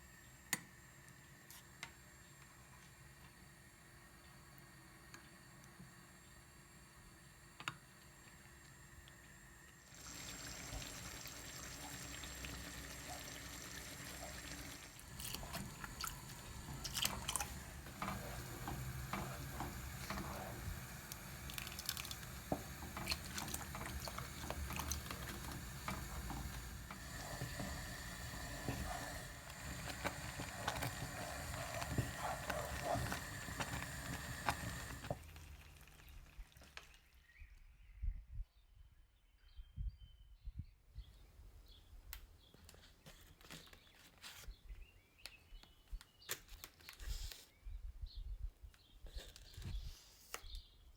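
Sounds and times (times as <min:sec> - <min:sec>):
water running in a sink: 0:08.0 - 0:37.1.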